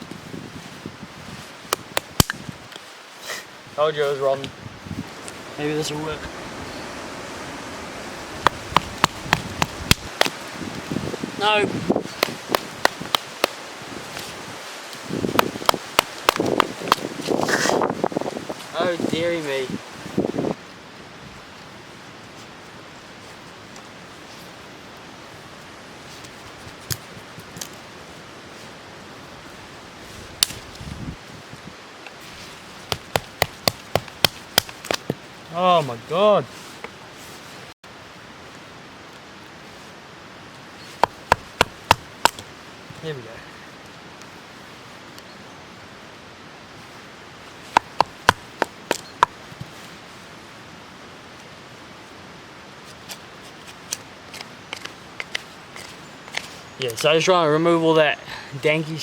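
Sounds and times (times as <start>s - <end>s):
steady background hiss: 0.0s - 59.0s
knife splitting firewood: 1.7s - 2.5s, 8.4s - 10.4s, 12.0s - 14.3s, 15.0s - 17.9s, 32.8s - 35.2s, 41.0s - 42.5s, 47.7s - 49.4s
dull thump: 8.4s - 10.4s, 32.9s - 35.2s, 41.0s - 42.4s, 47.7s - 49.4s.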